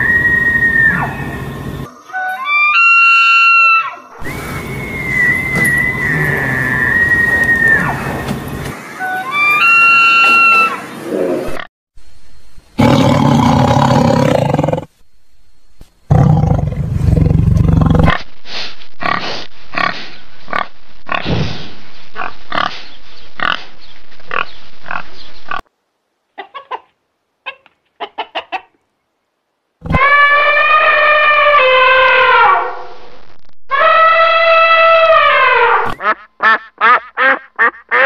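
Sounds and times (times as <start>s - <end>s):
pitched animal call: 2.0s - 4.1s, 29.8s - 32.9s, 33.7s - 36.1s
loud rough animal calls: 29.8s - 32.7s.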